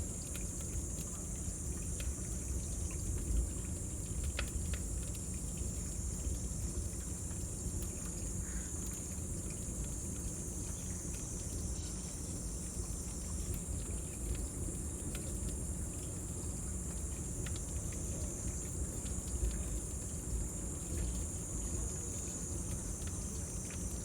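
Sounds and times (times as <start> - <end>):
cicadas singing: 11.2 - 13.0.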